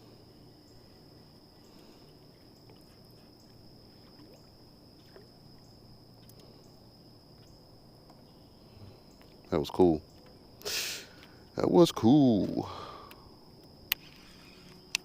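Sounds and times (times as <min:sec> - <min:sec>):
high-pitched insect drone: 0:08.3 - 0:15.0
faint clicks: 0:13.0 - 0:15.0.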